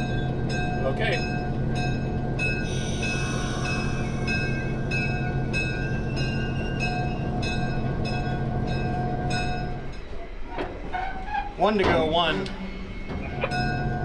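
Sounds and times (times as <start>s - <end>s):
locomotive engine hum: 0.0s - 10.5s
locomotive bell ringing: 0.1s - 10.2s.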